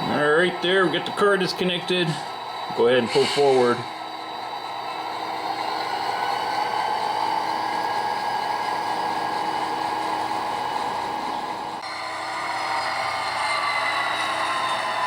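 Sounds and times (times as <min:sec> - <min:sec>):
model locomotive engine sound: 0:00.0 - 0:15.0.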